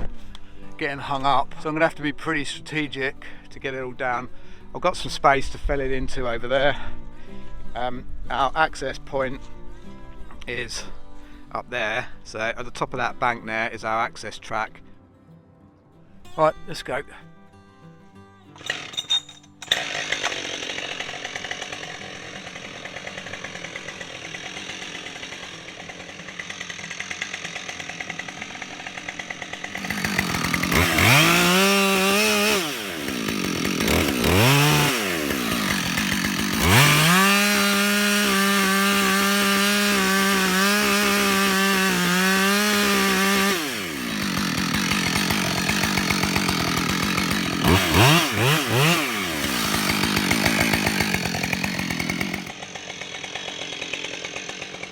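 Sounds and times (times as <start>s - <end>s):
chainsaw cutting wood: 18.5s - 54.9s
chainsaw idling and revving: 18.6s - 54.9s.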